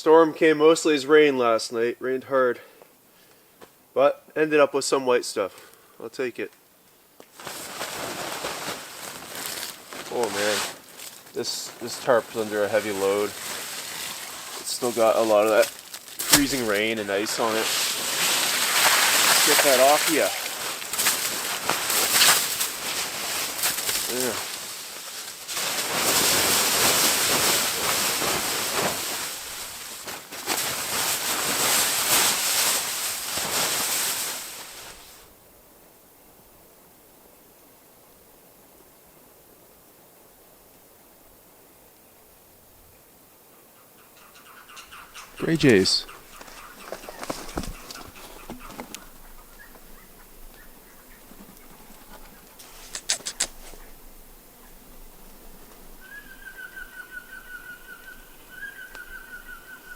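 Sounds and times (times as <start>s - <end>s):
tarp rustling with ice and snow: 7.3s - 35.4s, 45.4s - 49.7s.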